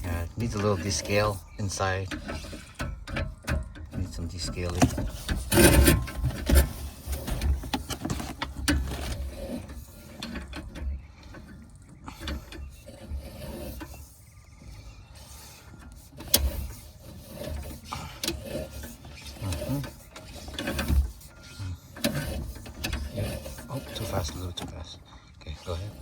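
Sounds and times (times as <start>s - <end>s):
cable rubbing on reel: 4.6s - 10.2s, 12.4s - 26.0s.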